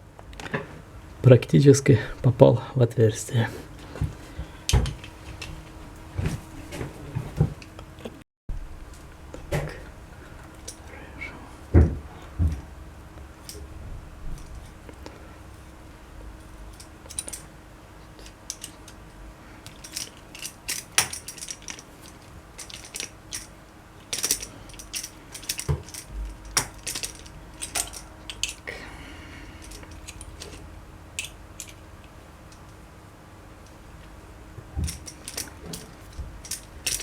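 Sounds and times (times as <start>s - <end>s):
metal parts and tools clinking: 16.7s - 17.5s, 18.1s - 19.0s, 19.6s - 28.7s, 29.5s - 32.7s, 34.8s - 37.0s.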